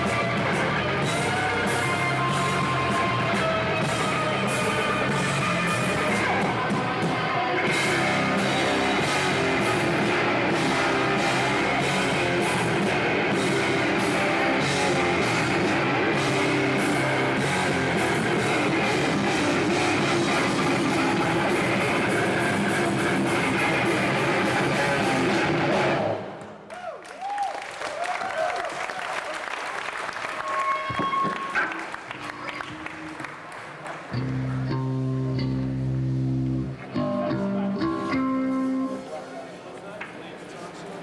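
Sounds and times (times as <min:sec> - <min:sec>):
metal band playing live: 0:00.0 - 0:26.2.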